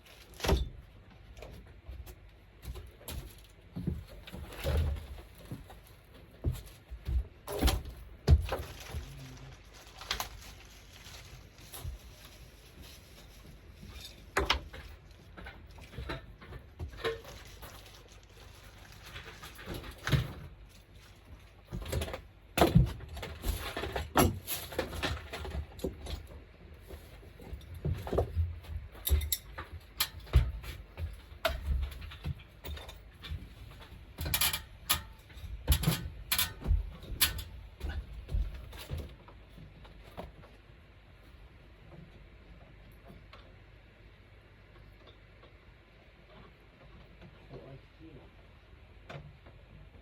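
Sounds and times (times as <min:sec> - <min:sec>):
tools and parts knocking and rattling: 0:11.1 - 0:18.0, 0:21.7 - 0:26.4, 0:27.0 - 0:39.2.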